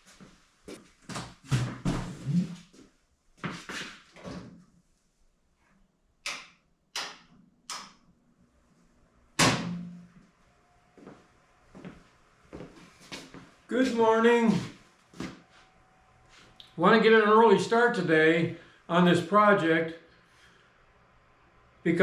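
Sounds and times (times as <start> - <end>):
loud slam with ring: 9.4 - 10.1.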